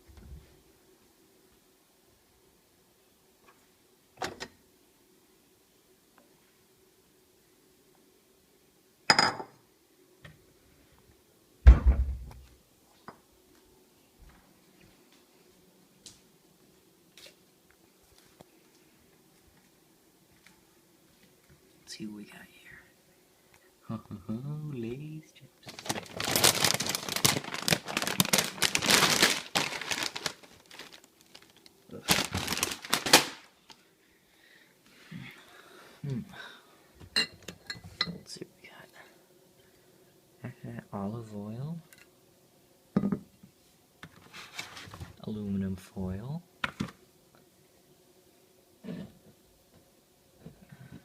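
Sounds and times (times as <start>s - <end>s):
heavy thump with low boom: 11.7s - 12.3s
chip bag crinkling: 25.6s - 33.8s.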